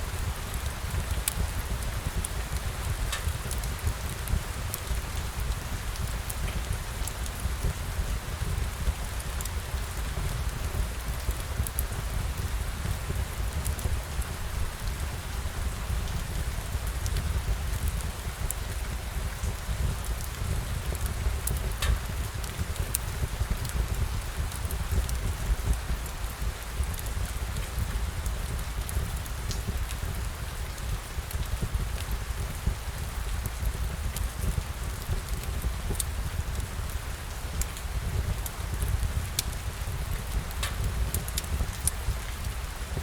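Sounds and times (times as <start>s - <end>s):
steady rain falling: 0.0s - 43.0s
light ticks: 1.1s - 4.1s, 20.2s - 23.0s, 40.4s - 42.1s
light drop ticks: 40.6s - 41.8s.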